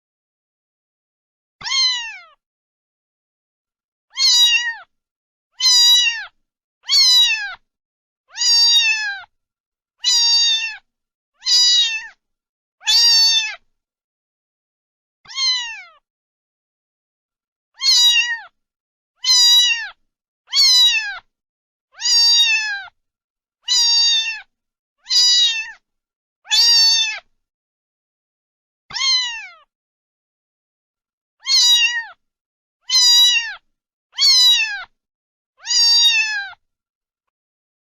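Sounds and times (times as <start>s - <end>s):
cat meowing: 1.6s - 2.4s, 4.1s - 4.9s, 5.6s - 7.6s, 8.3s - 9.3s, 10.0s - 12.2s, 12.8s - 13.6s, 15.3s - 16.0s, 17.8s - 18.6s, 19.2s - 21.3s, 22.0s - 23.0s, 23.6s - 25.8s, 26.5s - 27.3s, 28.9s - 29.7s, 31.4s - 32.2s, 32.8s - 35.0s, 35.6s - 36.6s.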